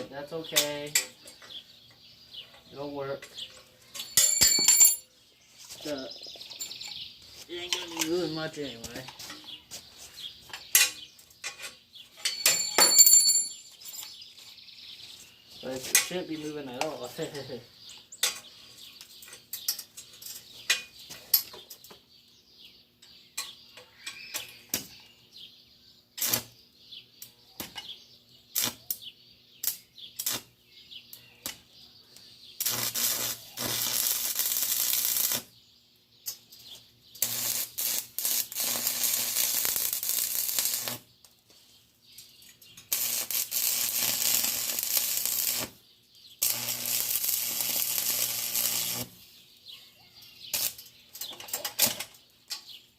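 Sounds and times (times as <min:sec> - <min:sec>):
arc welder crackling: 0:26.2 - 0:26.6, 0:28.5 - 0:29.0, 0:29.6 - 0:31.6, 0:32.2 - 0:35.6, 0:36.2 - 0:41.4, 0:42.4 - 0:49.4, 0:50.5 - 0:52.2.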